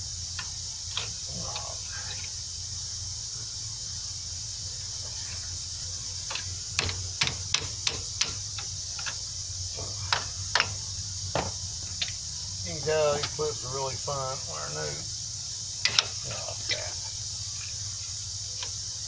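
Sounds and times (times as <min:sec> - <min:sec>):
metal clips clicking and tapping: 0:06.3 - 0:09.2, 0:15.8 - 0:16.2.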